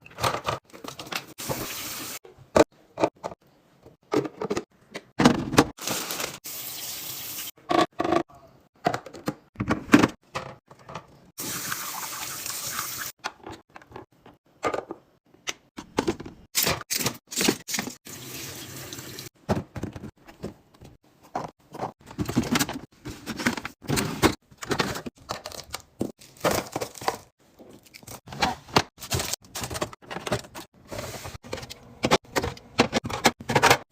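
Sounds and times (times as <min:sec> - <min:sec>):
tap water running: 0:05.9 - 0:07.5, 0:11.4 - 0:13.1, 0:17.8 - 0:19.3.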